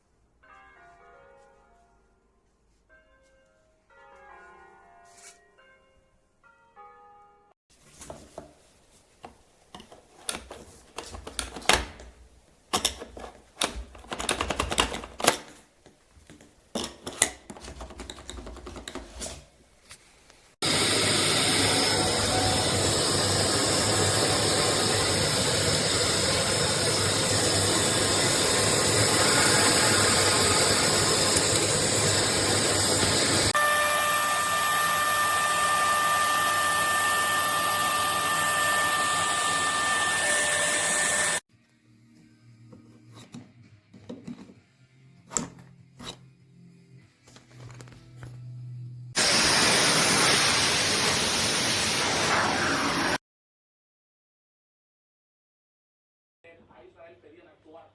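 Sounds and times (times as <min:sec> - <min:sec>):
sharp clicks and knocks: 0:09.2 - 0:19.2
vacuum cleaner running: 0:20.6 - 0:41.4, 0:49.2 - 0:53.2.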